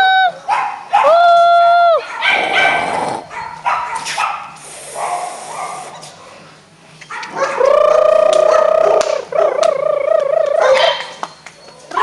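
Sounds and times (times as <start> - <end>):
puppy whining cry: 7.5 - 9.6.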